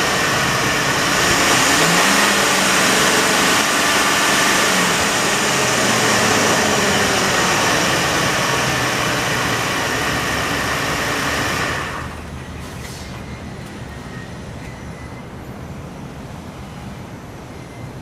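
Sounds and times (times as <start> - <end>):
pickup engine running: 0.0 - 12.8.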